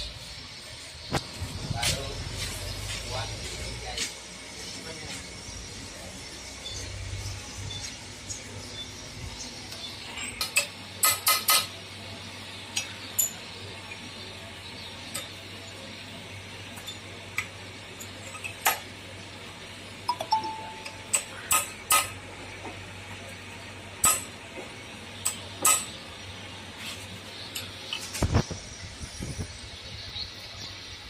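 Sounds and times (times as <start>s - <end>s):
steady low hum: 0.0s - 31.0s
metal tools clinking and tapping: 10.1s - 11.8s, 12.8s - 13.5s, 16.7s - 18.9s, 20.1s - 22.8s, 24.0s - 24.4s, 25.2s - 26.0s.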